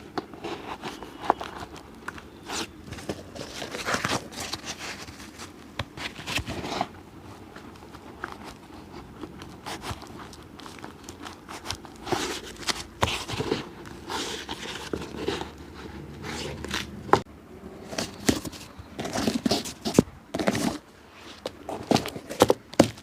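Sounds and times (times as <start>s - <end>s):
scraping and rubbing leather: 0.1s - 17.3s.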